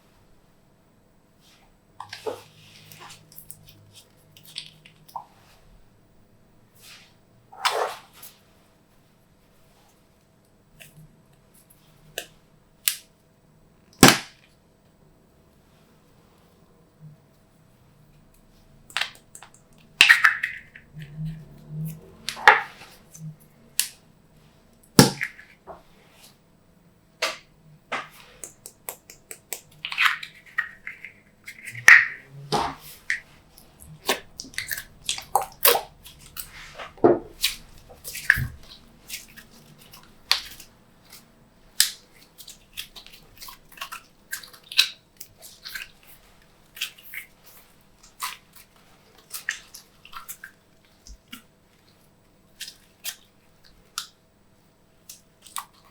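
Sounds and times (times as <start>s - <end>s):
slime squelching by hand: 28.0s - 54.1s.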